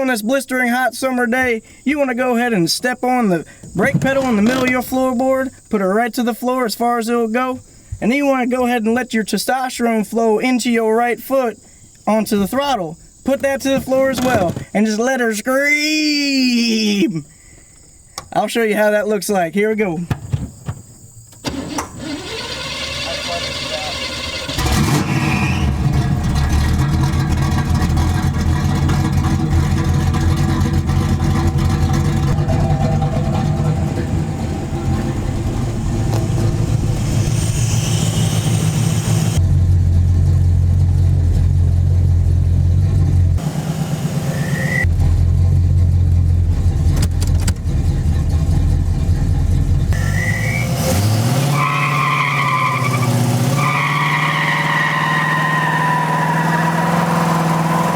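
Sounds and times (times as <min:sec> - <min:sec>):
short high tyre squeals: 0:21.4 - 0:39.4, 0:43.4 - 0:44.9, 0:49.9 - 0:57.9
car engine revving at high revs: 0:21.7 - 0:57.9.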